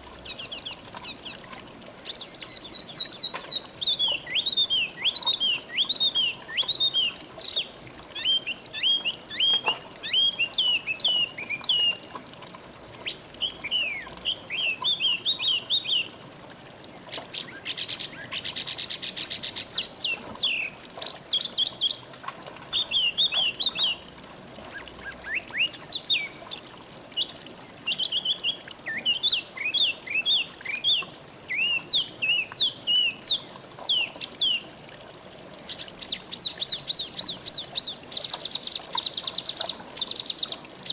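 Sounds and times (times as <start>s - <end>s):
flowing water hiss: 0.0s - 40.9s
songbird chirping and whistling: 2.1s - 12.0s, 13.4s - 16.1s, 27.2s - 34.6s.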